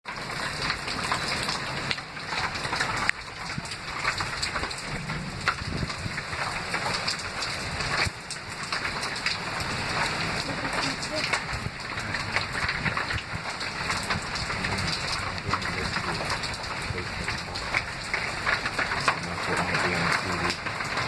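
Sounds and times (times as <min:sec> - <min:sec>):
heavy rain pouring: 0:00.1 - 0:21.0.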